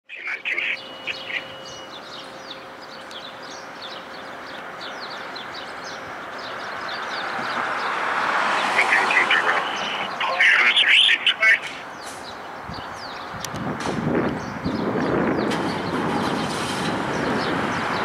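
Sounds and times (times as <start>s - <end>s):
small songbirds chirping: 0.2s - 18.0s
short high beeps: 0.7s - 1.9s.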